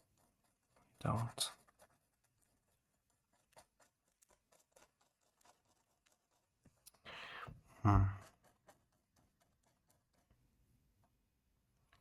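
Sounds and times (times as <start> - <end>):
pencil scratching on paper: 0.0 - 10.4
person breathing out: 7.0 - 7.6
person humming or grunting: 7.8 - 8.2.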